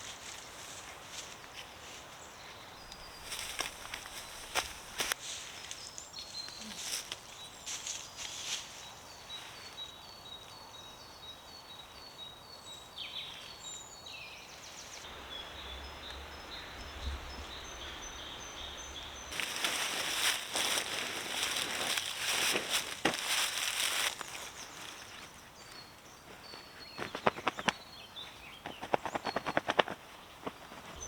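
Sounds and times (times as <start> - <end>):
camping gear rustling and clicking: 2.8 - 5.9, 17.4 - 25.4
songbird singing high notes: 15.1 - 19.4.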